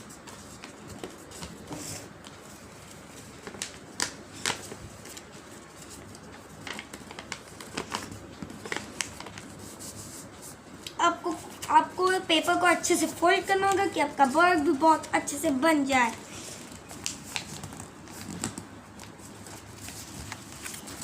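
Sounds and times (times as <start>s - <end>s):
paper rustling and crinkling: 0.0s - 11.7s, 16.4s - 21.0s.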